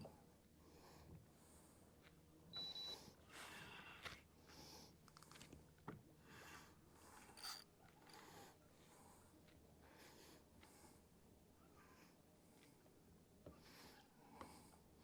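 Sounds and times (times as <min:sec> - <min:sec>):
high beep: 0:02.6 - 0:03.0.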